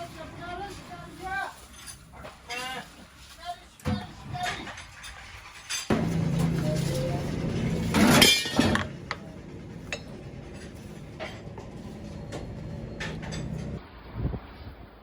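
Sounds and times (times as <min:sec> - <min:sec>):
loud noisy clatter: 0:03.9 - 0:13.8
metallic clinks and knocks: 0:04.0 - 0:13.8
machine hum: 0:05.9 - 0:13.8.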